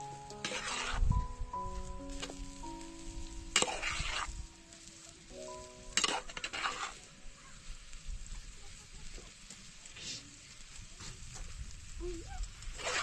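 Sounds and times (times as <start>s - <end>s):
soft background music: 0.0s - 7.6s.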